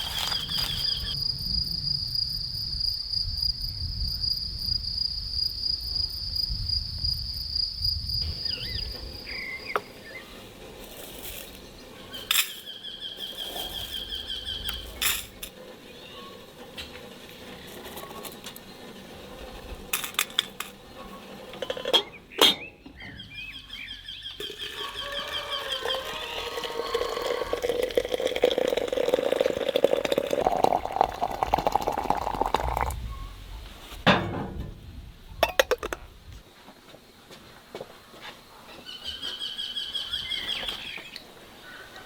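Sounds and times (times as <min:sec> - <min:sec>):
dishes and utensils clinking: 0:21.6 - 0:22.7, 0:35.4 - 0:36.0.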